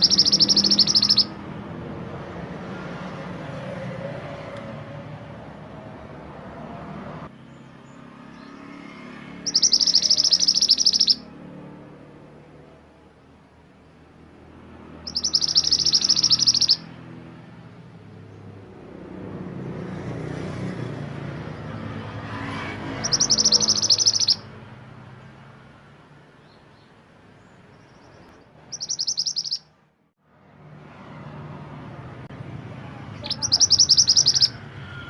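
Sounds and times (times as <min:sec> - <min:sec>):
songbird high-pitched trills: 0:00.0 - 0:01.4, 0:09.4 - 0:11.3, 0:15.0 - 0:16.9, 0:23.0 - 0:24.5, 0:27.9 - 0:29.7, 0:33.2 - 0:34.6.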